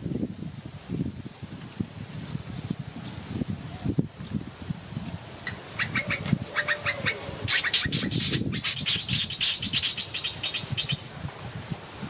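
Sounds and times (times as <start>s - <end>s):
wind gusts on microphone: 0.0s - 12.0s
small birds chirping: 5.5s - 11.0s.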